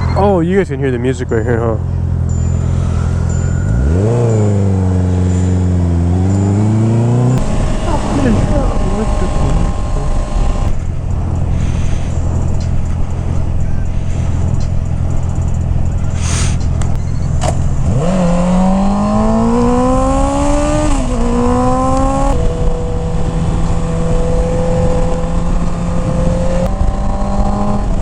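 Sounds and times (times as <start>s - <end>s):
motorcycle engine accelerating: 0.0s - 28.0s
rushing wind noise: 2.7s - 28.0s.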